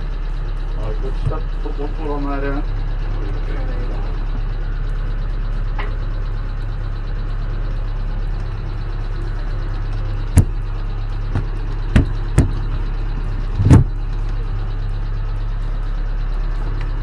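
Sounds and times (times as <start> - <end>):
steady low hum: 0.0 - 17.0
sharp knocks in boat cabin: 11.4 - 12.6.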